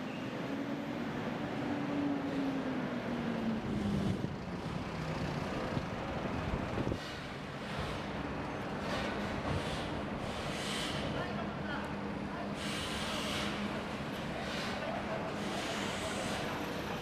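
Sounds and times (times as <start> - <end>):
traffic rumble: 0.4 - 10.2.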